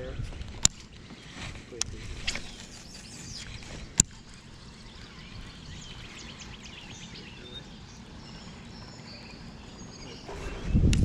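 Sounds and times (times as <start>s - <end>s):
outdoor background noise: 0.0s - 11.0s
small bird chirping: 0.7s - 10.9s.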